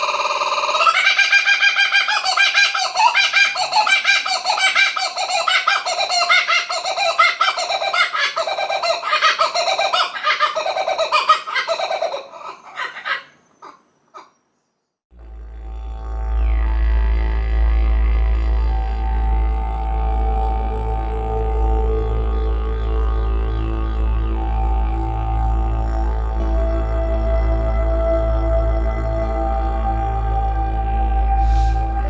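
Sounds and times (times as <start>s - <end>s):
kookaburra cackling call: 0.0s - 14.4s.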